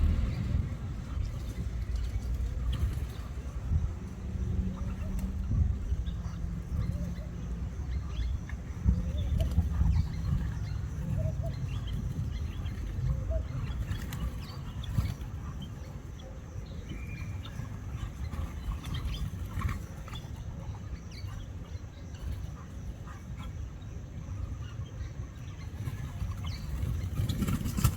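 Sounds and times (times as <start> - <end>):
steady low rumble: 0.0 - 13.8
small birds chirping: 0.0 - 27.9.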